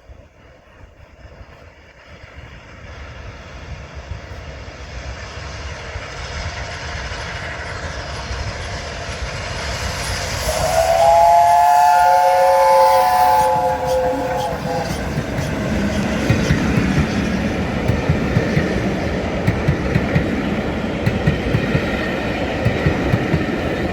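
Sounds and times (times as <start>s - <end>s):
steam locomotive running: 0.0s - 23.9s
steam whistle chord: 9.9s - 16.0s.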